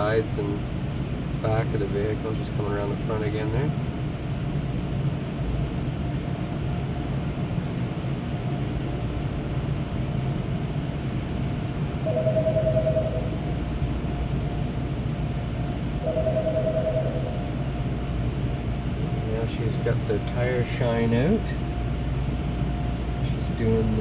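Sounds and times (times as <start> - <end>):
vehicle cabin rumble and fan hum: 0.0 - 24.0
two-note tone: 16.0 - 17.6.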